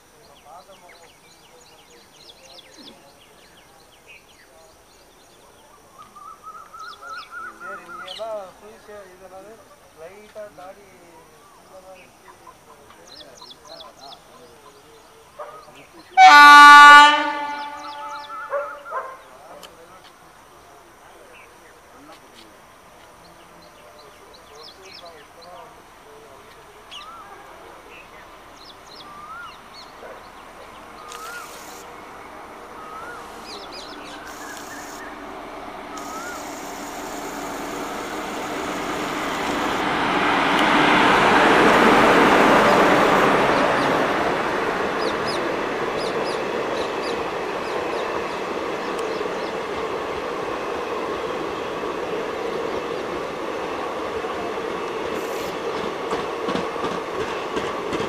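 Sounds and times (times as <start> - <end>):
electric locomotive passing: 0.0 - 58.0
train coaches running by: 0.0 - 58.0
bird chirping: 17.4 - 19.4, 26.5 - 39.8.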